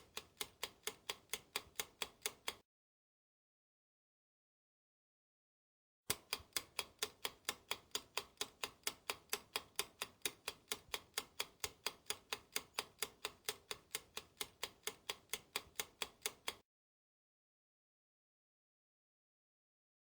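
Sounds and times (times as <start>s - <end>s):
clock ticking: 0.0s - 2.6s, 6.1s - 16.6s.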